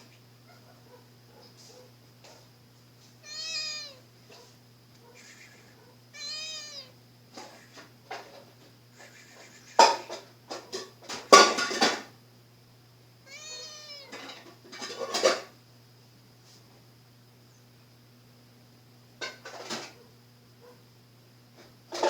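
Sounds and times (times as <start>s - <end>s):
cat meowing: 3.2s - 4.1s, 6.1s - 7.0s, 13.3s - 14.4s.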